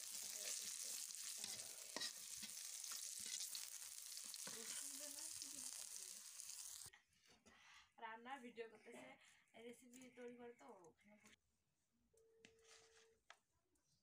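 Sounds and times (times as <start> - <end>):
chilies sizzling in hot oil: 0.0 - 6.9
metal spatula scraping pan: 0.1 - 5.2.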